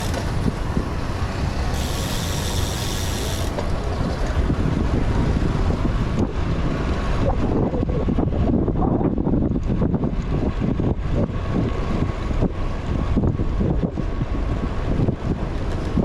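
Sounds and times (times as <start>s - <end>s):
bicycle freehub ratcheting whir: 0.0s - 4.5s
wind rumble on microphone: 0.0s - 16.0s.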